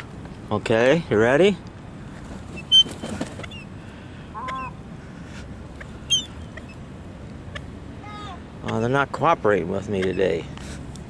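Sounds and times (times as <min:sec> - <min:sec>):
seagulls calling: 0:02.5 - 0:06.8, 0:09.9 - 0:10.4.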